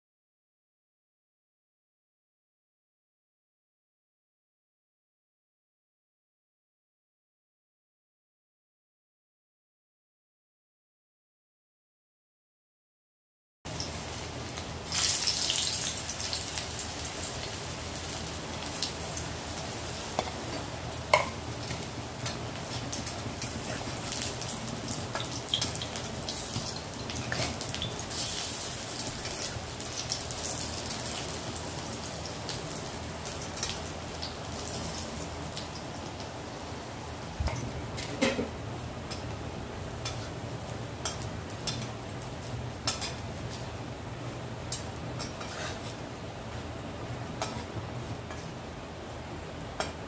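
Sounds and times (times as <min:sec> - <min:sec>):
oil sizzling with pops: 0:13.7 - 0:36.4, 0:37.3 - 0:43.8, 0:44.6 - 0:48.7
metal spatula scraping a pan: 0:45.2 - 0:46.0.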